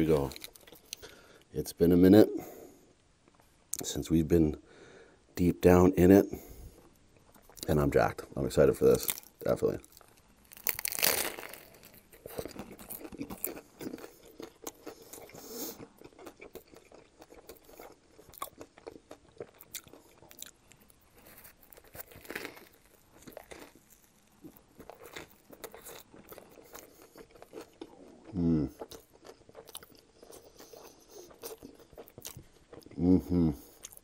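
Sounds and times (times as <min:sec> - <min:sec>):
close-up crunchy chewing: 0:00.1 - 0:01.5, 0:06.8 - 0:07.7, 0:08.9 - 0:33.0, 0:33.6 - 0:34.0
crunchy bite into sandwich: 0:09.0 - 0:34.0.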